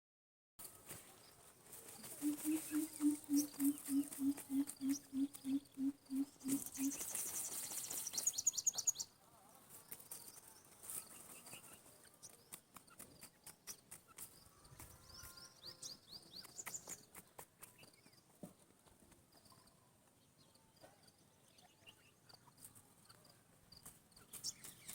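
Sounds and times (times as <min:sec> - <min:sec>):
bird low hoots: 0:02.2 - 0:07.0
bird high chirps: 0:02.2 - 0:09.1.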